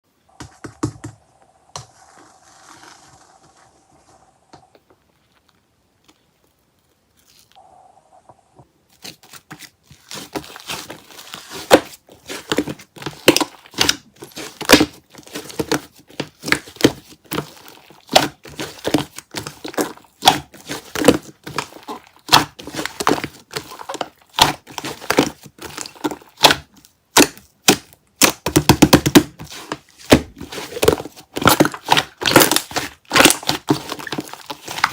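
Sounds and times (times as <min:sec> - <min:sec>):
hands squishing slime: 0:09.0 - 0:34.9.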